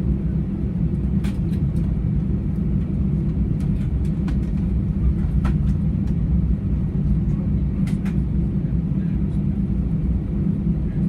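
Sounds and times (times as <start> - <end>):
aircraft cabin rumble: 0.0 - 11.0.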